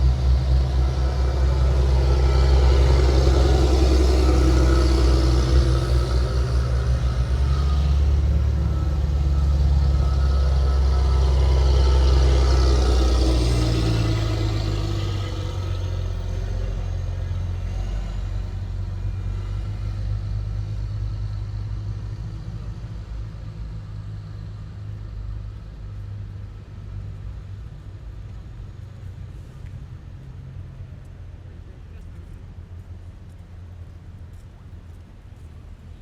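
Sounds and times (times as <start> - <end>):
high whining tones: 0.0 - 16.7
heavy vehicle engine rumble: 0.0 - 36.0.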